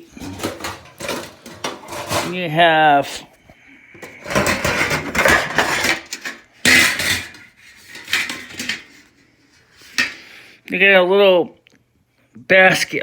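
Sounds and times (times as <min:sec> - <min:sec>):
metal trays clattering and rattling: 0:00.0 - 0:02.8, 0:04.0 - 0:09.1, 0:10.0 - 0:10.2.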